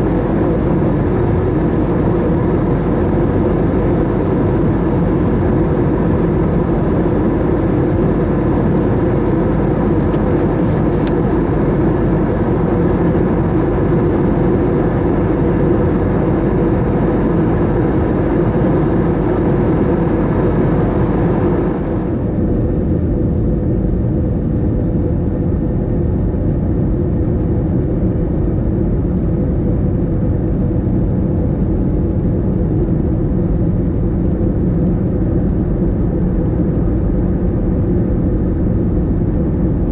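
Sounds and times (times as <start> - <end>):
faint hum: 0.0 - 22.7
airliner cabin engine rumble: 0.0 - 39.9.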